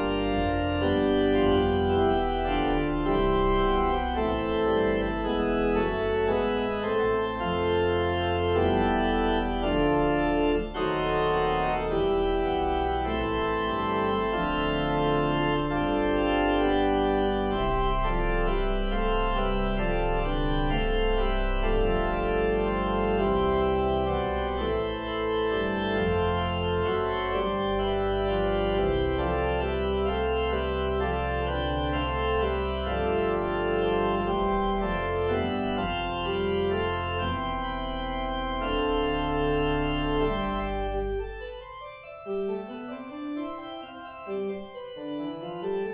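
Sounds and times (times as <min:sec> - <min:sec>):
organ chords: 0:00.0 - 0:45.9.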